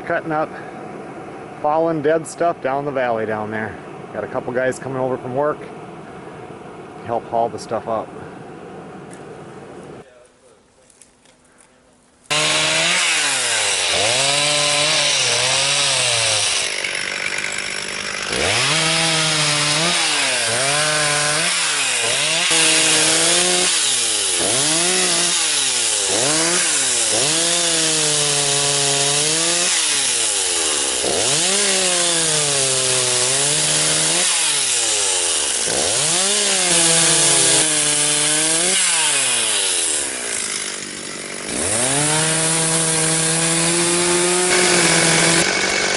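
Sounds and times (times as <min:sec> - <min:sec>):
chainsaw cutting wood: 0:12.3 - 0:45.9.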